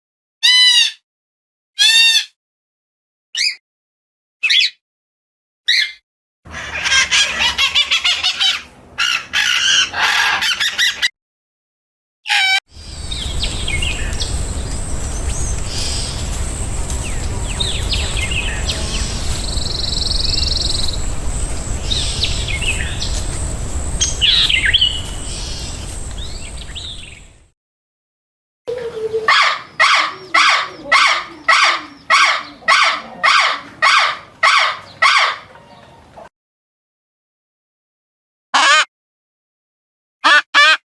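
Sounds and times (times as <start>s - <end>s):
birds calling: 5.7s - 11.1s, 12.5s - 27.5s, 28.7s - 36.2s
loud repeated bird call: 5.7s - 11.1s, 12.3s - 27.3s, 28.7s - 35.5s
steady high whine: 12.7s - 27.4s
low wind rumble: 12.7s - 27.5s.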